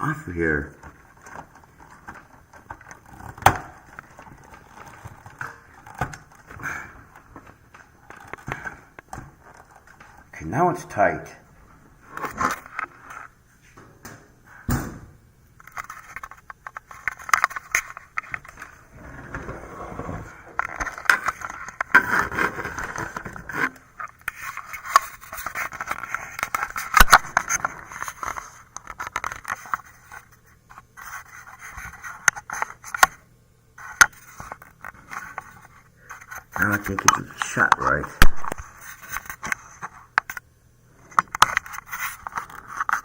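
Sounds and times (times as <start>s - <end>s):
plastic and metal parts scraping: 0.8s - 10.3s, 15.6s - 33.2s, 41.0s - 43.0s.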